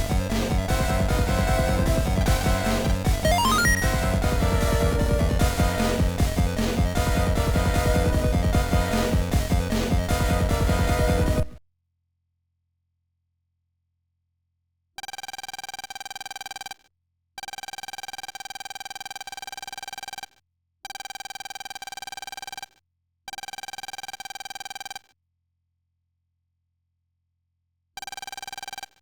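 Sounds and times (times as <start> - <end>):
electronic buzzing tone: 0.0 - 5.9.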